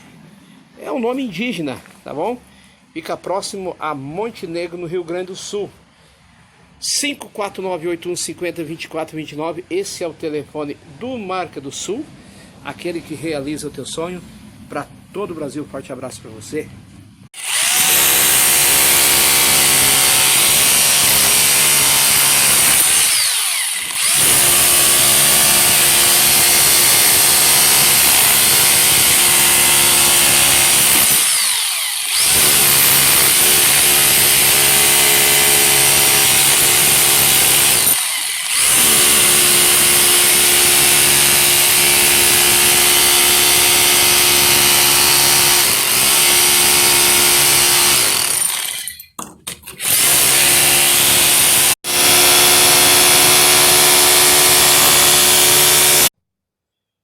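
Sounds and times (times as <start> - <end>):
power tool motor whine: 17.4 - 49.0, 49.8 - 56.1.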